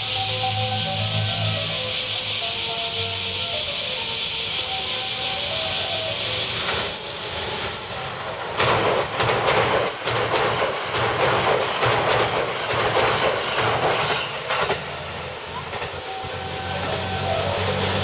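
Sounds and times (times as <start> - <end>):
electric train passing: 0.0 - 18.0
wheels clattering over rail joints: 8.3 - 17.1.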